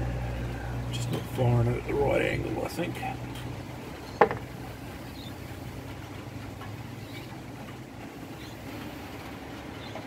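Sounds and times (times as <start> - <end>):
light rain falling: 0.0 - 10.0.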